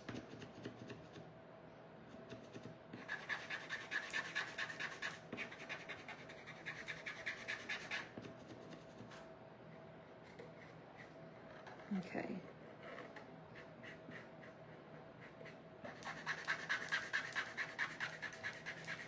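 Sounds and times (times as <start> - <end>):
marker scrubbing on wood: 12.8 - 19.0.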